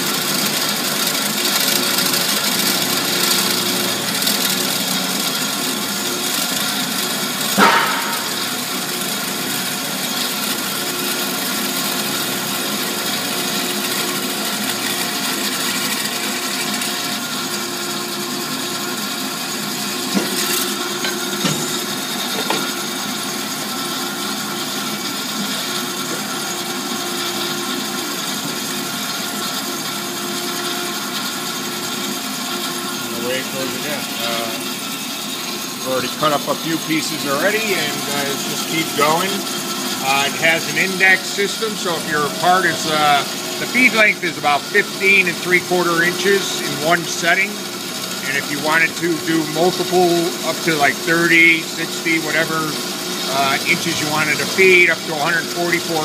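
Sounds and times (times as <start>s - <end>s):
band saw cutting metal: 0.0s - 56.0s
loud clunk: 7.6s - 8.5s.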